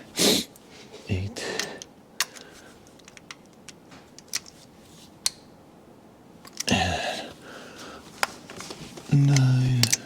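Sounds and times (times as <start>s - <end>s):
hand wrench clicking: 9.2s - 10.0s.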